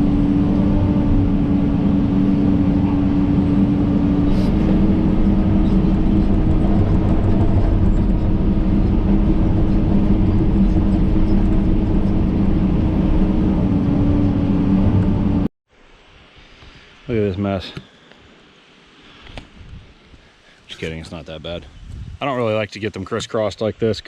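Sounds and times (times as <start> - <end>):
engine whine: 0.0 - 15.5
excavator diesel engine running: 0.0 - 15.5.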